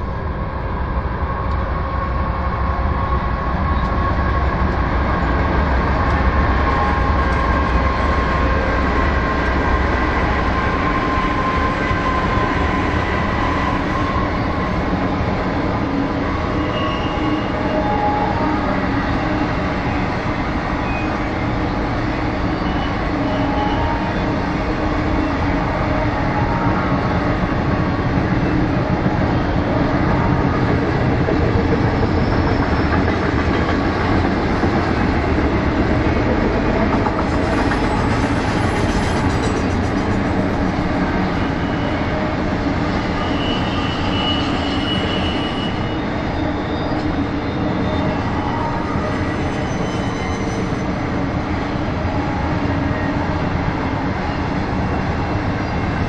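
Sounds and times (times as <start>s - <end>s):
freight train cars rolling past: 0.0s - 56.0s
high wheel squeal: 16.5s - 18.4s, 22.4s - 24.2s, 41.2s - 51.0s.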